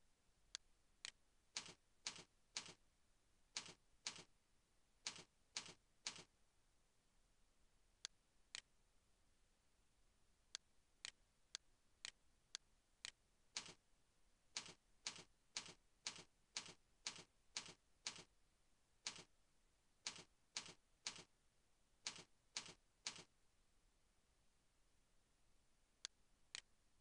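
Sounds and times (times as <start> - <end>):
faint computer mouse clicks: 3.6 - 4.3, 5.1 - 6.3, 19.1 - 19.3, 20.1 - 21.3, 22.1 - 23.3.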